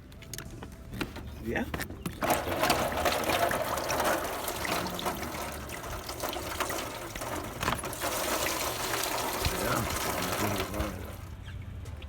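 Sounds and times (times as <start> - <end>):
liquid pouring into a pan: 2.2 - 11.3.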